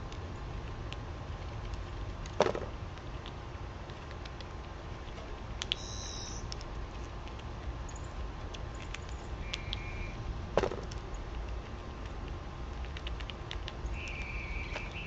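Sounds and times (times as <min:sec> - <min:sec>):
light clicks of small birds: 0:00.0 - 0:15.0
low outdoor rumble: 0:00.0 - 0:15.0
high bird chirps: 0:05.7 - 0:06.5, 0:09.4 - 0:10.2, 0:13.9 - 0:15.0.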